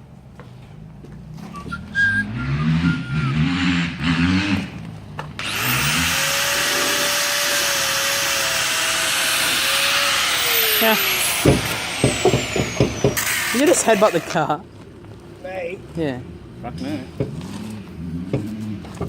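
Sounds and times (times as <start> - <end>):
rotary cutting tool whining: 5.4 - 14.4.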